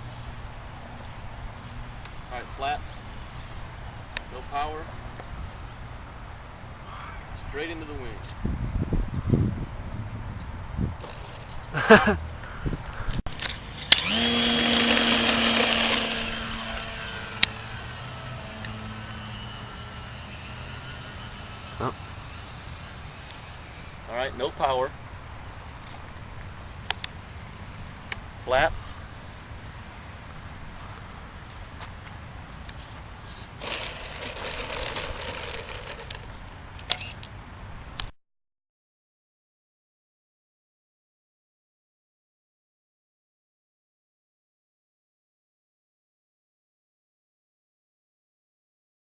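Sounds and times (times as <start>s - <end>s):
wind buffeting microphone: 8.3s - 11.1s, 12.4s - 13.3s
model plane motor whining: 13.4s - 24.1s, 33.6s - 37.2s.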